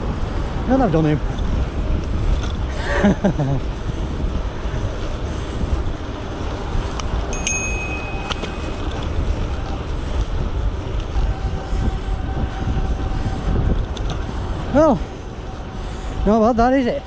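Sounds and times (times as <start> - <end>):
electric bike rolling on road: 0.0 - 17.0
wind on microphone: 0.0 - 17.0
brief high-pitched ring: 7.4 - 8.9.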